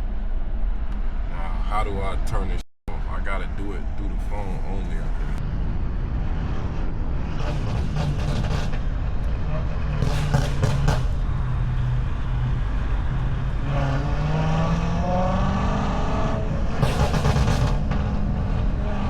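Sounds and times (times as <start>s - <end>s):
car engine accelerating: 3.9s - 19.0s
bursts of rushing noise: 4.9s - 15.2s, 16.6s - 19.0s.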